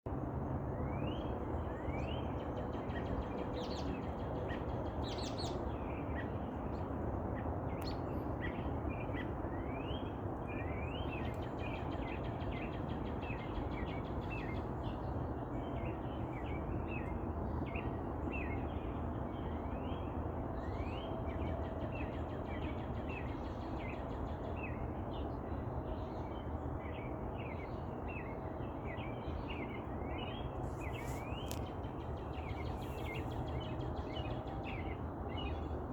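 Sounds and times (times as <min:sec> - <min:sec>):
steady outdoor background rush: 0:00.1 - 0:35.9
birds chirping: 0:29.4 - 0:35.8.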